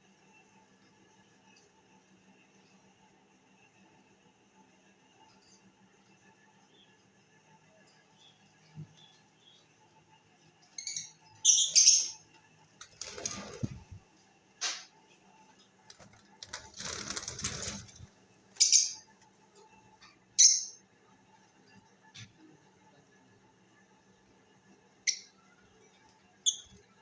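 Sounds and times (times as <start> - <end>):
parrots calling: 10.8 - 12.2, 18.6 - 19.1, 20.4 - 20.8
wings flapping: 12.8 - 14.0, 15.9 - 18.2.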